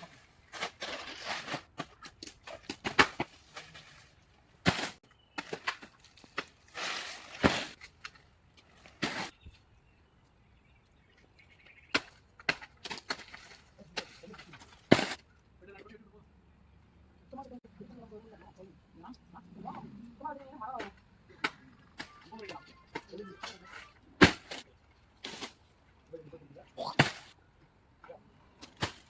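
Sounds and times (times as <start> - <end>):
blade chopping wood: 2.6 - 3.3, 24.2 - 24.6.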